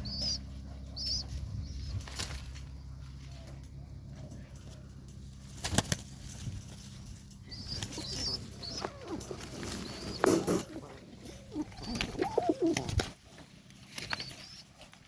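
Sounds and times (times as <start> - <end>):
soft pigeon calls: 0.0 - 4.8, 6.8 - 15.0
pigeon wing flaps: 5.6 - 6.1, 11.9 - 13.2.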